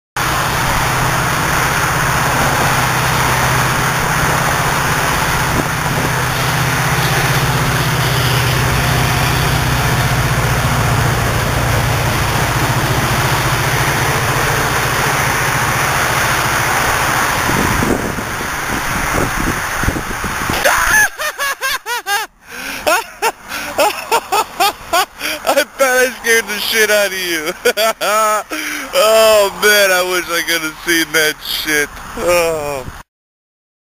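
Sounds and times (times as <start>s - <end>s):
vehicle engine running: 0.2s - 20.5s
rushing noise: 0.2s - 33.0s.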